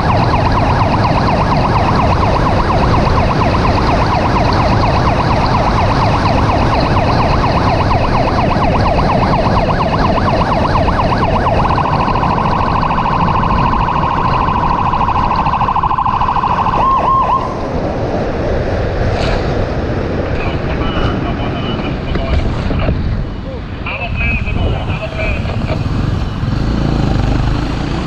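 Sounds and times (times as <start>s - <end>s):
emergency vehicle siren: 0.0s - 18.7s
road and engine noise: 0.0s - 28.0s.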